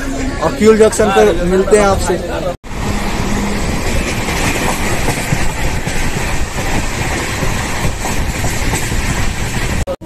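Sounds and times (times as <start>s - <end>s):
train wheels rumbling on rails: 2.7s - 10.0s.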